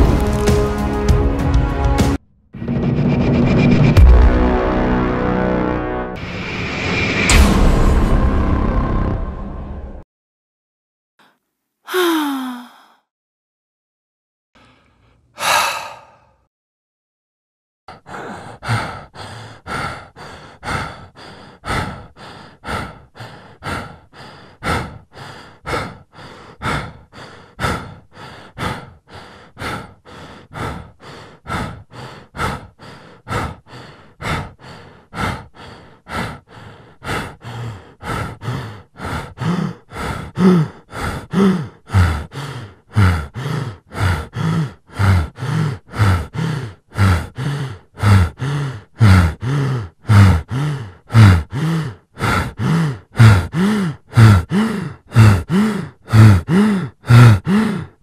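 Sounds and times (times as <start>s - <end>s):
person breathing heavily: 11.2s - 13.1s, 14.6s - 16.5s, 17.9s - 58.0s
panting sighs: 17.9s - 58.0s.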